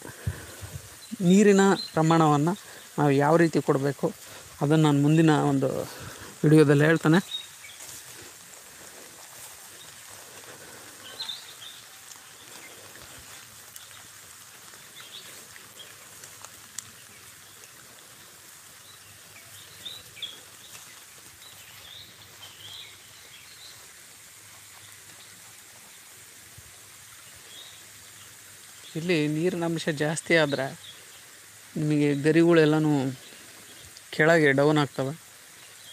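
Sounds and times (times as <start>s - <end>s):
steady low hiss: 0.0s - 35.9s
bird chirps: 11.0s - 12.8s, 18.8s - 23.9s.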